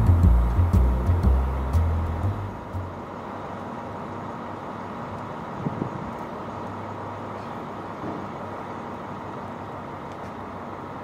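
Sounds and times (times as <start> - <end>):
vehicle engine and traffic noise: 0.0 - 11.0.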